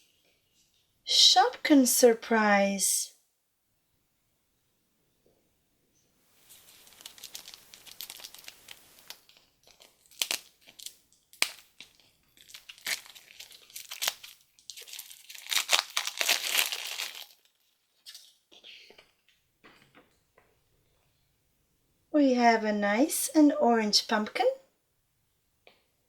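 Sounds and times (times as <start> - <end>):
plastic packaging crumpled and torn: 6.4 - 18.4.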